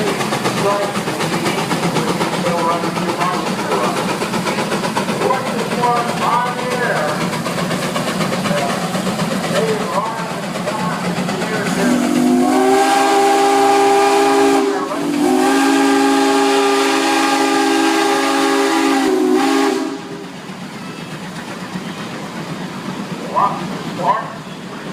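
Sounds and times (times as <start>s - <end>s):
hissing steam: 0.0s - 24.9s
steam whistle chord: 11.9s - 20.1s.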